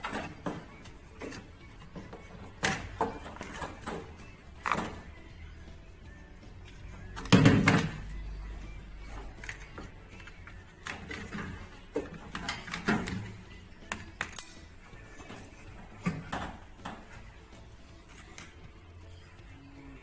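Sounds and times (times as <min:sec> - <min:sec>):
tools knocking and clattering: 0:00.0 - 0:05.2, 0:07.2 - 0:08.2, 0:09.4 - 0:17.3.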